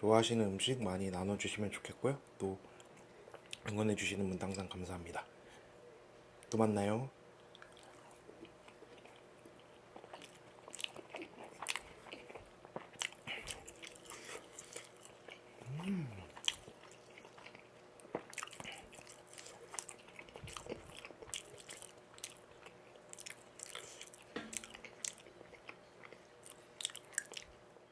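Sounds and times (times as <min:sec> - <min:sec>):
chewing and biting food: 0:07.4 - 0:27.6
person humming: 0:15.6 - 0:16.4.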